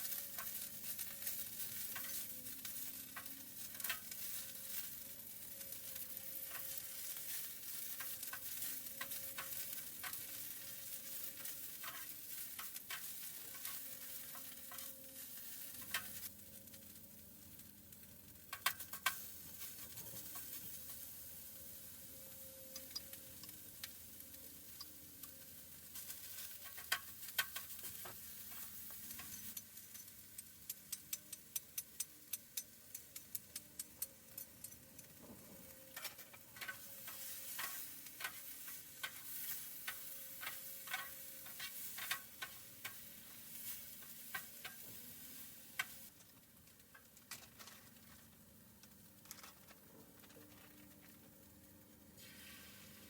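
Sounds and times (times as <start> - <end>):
food sizzling in a pan: 0.0 - 50.7, 51.7 - 53.0
sharp pops and clicks: 29.1 - 35.4.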